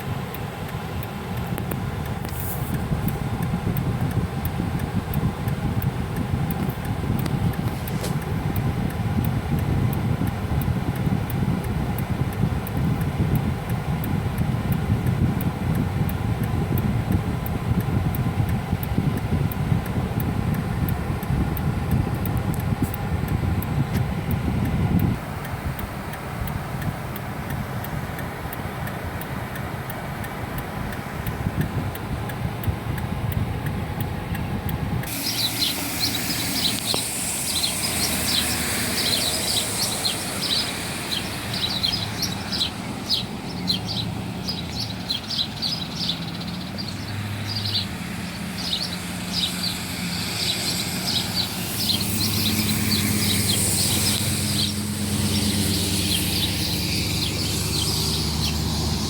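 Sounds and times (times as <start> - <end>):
low outdoor rumble: 0.0 - 59.0
low steady hum: 0.0 - 59.0
birds chirping rapidly: 35.1 - 59.0.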